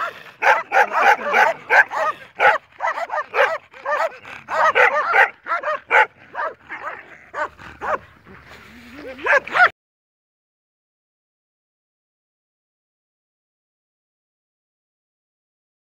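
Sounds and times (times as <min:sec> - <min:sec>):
dogs barking: 0:00.0 - 0:09.7.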